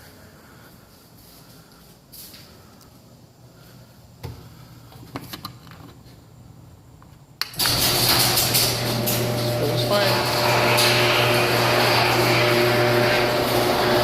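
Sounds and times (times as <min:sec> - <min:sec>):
garage door opener motor: 0:07.5 - 0:14.0.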